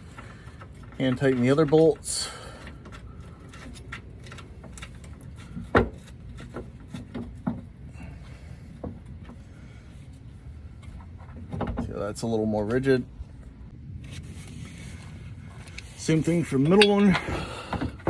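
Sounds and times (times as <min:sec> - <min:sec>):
metal hardware clicking and knocking: 0:16.6 - 0:18.0.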